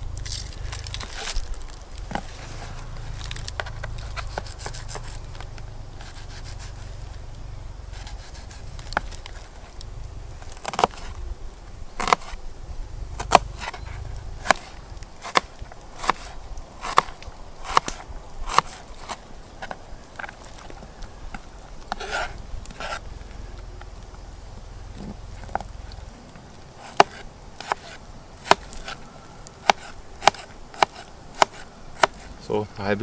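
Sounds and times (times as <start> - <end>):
knife scraping onion: 4.0 - 5.2, 7.9 - 9.2, 13.2 - 19.2, 21.9 - 23.0, 26.8 - 29.0, 29.6 - 32.4
knife chopping onion: 26.8 - 29.0, 29.6 - 32.3.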